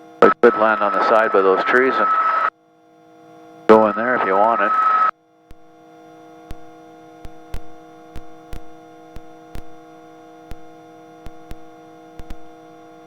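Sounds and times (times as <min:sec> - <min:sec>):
electrical hum on intercom: 0:00.0 - 0:02.5, 0:03.5 - 0:05.8, 0:06.5 - 0:13.0
radio voice transmissions: 0:00.2 - 0:02.5, 0:03.7 - 0:05.1.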